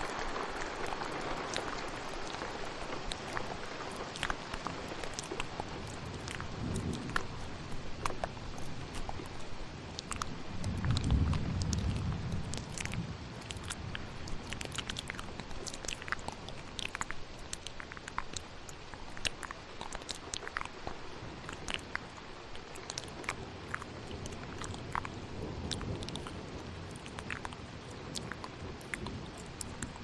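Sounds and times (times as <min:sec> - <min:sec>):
low thunder rumble: 0:00.0 - 0:17.2
mouth clicks and smacks: 0:00.0 - 0:30.0
steady rain: 0:00.0 - 0:30.0.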